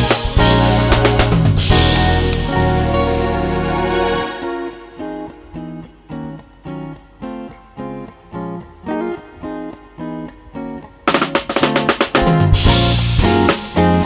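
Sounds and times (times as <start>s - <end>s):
band with drums: 0.0s - 5.0s, 11.1s - 14.0s
guitar picking single notes: 0.0s - 11.4s.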